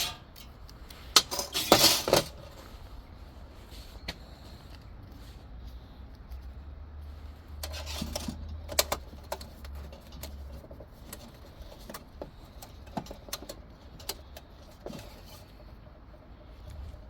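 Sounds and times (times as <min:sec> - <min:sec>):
metal parts clinking: 0:00.0 - 0:02.5.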